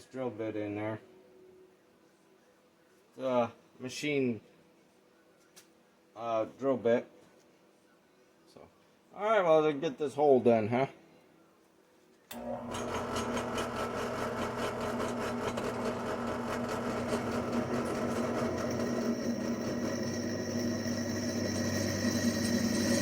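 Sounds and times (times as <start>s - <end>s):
drill press motor whirring: 12.3s - 23.0s.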